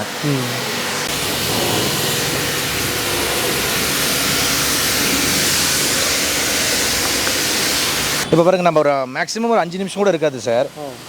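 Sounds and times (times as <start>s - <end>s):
pump motor humming: 0.0s - 8.6s
water jet hissing: 0.0s - 11.0s.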